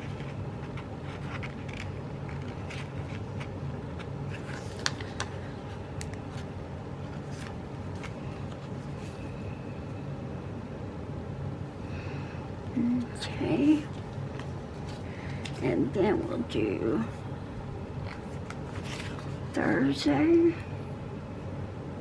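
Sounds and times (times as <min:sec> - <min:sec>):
paper rustling: 0:00.0 - 0:09.3, 0:18.0 - 0:19.5
low background hum: 0:00.0 - 0:22.0.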